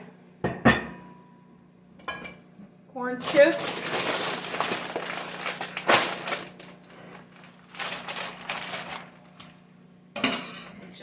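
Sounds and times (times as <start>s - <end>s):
chips crackling in crinkly bag: 3.2s - 9.7s.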